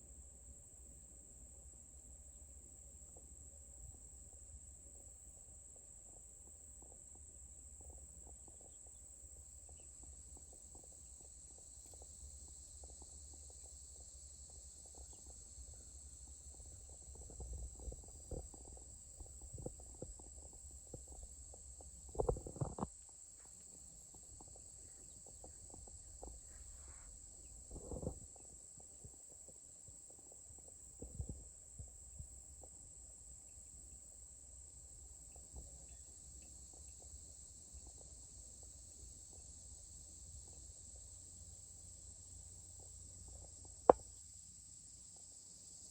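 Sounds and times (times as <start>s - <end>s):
crickets and insects chirping: 0.0s - 45.9s.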